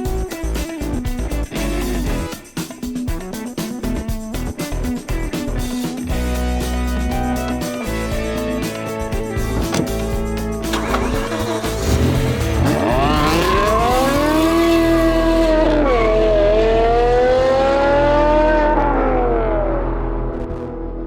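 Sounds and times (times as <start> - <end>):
music: 0.0 - 21.0
car engine accelerating hard: 9.6 - 20.7.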